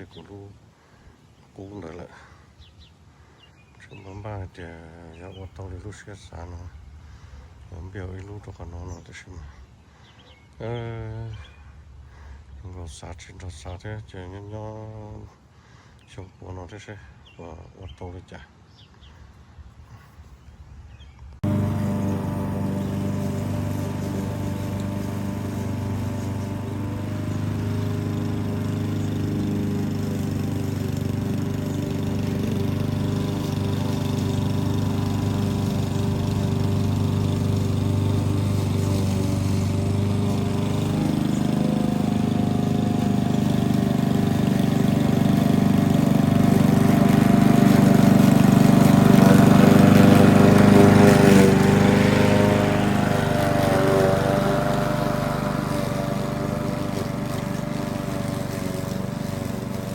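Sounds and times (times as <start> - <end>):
lawn mower engine running: 21.4 - 59.9.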